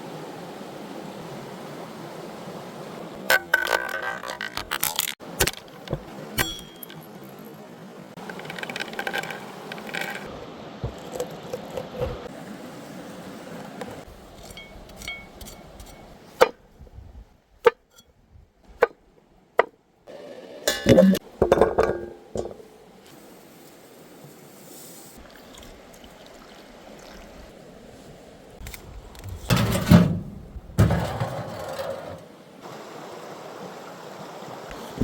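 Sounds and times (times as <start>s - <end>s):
utensils clinking against pots: 14.4s - 16.0s, 20.7s - 22.6s.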